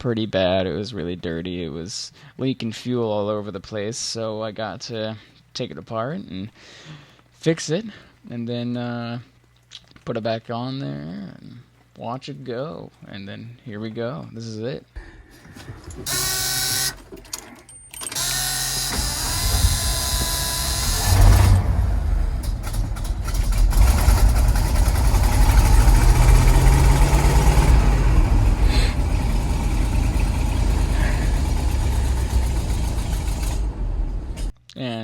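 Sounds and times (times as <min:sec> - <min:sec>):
truck starter cranking: 0:15.7 - 0:34.5
truck engine rumbling: 0:18.2 - 0:34.5.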